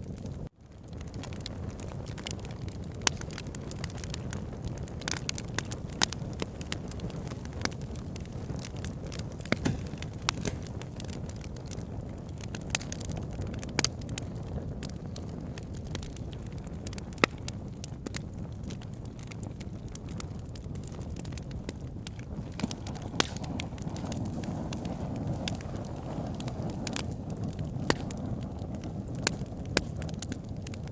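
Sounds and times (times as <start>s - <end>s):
wood fire crackling: 0.0s - 30.9s.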